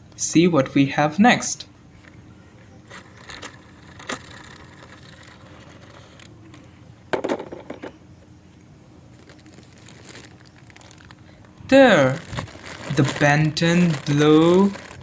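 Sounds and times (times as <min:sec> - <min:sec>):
plastic toys clicking and knocking: 0:07.1 - 0:08.0.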